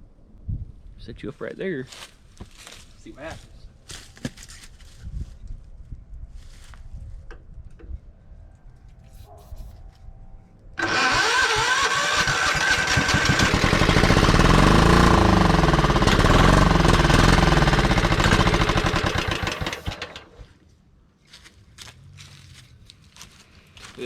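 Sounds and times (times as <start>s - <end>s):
lawn tractor engine running unevenly: 10.8s - 20.4s
starter motor cranking: 10.8s - 20.5s.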